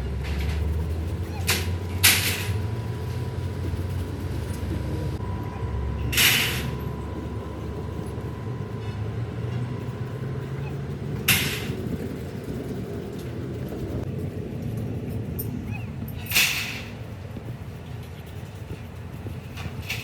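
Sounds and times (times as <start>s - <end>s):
low engine-like drone: 0.0s - 20.0s
air hissing: 6.1s - 6.9s.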